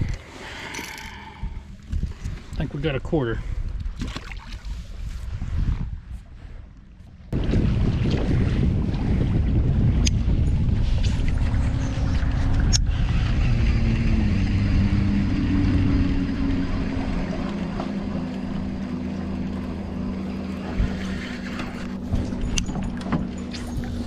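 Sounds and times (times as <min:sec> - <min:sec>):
small boat motor running: 0:06.5 - 0:24.0.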